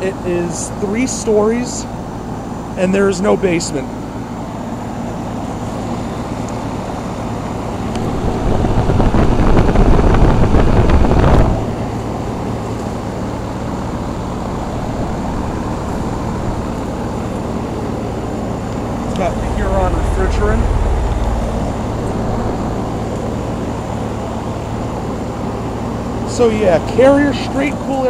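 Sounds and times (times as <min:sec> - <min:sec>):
compressor hum: 0:00.0 - 0:28.0
condenser fans whooshing: 0:00.0 - 0:28.0
loud rushing air: 0:07.2 - 0:26.3.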